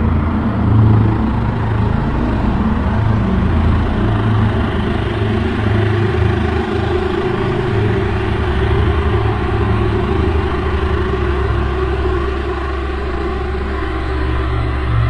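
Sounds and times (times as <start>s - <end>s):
low rumbling drone: 0.0s - 15.0s
steady higher hum: 0.0s - 15.0s.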